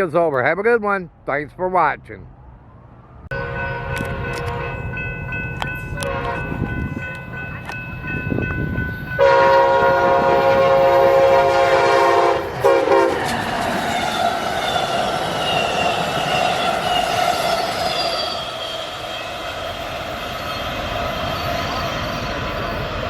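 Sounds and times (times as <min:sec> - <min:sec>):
locomotive air horn blasts: 0:03.3 - 0:04.8, 0:06.0 - 0:06.6, 0:09.2 - 0:13.2
train wheel and rail noise: 0:03.3 - 0:23.0.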